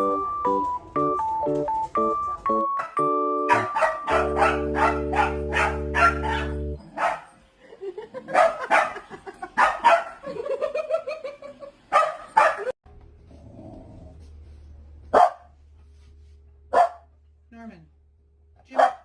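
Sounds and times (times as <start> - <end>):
sustained musical chord: 0.0 - 6.8
dog barking: 2.8 - 7.4, 8.3 - 10.2, 11.9 - 12.7, 15.1 - 15.5, 16.7 - 17.1, 18.7 - 19.0.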